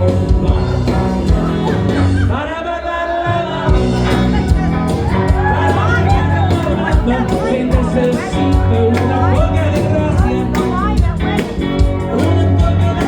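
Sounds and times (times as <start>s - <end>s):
live rock band playing: 0.0s - 2.4s, 3.3s - 13.0s
person singing: 0.0s - 13.0s.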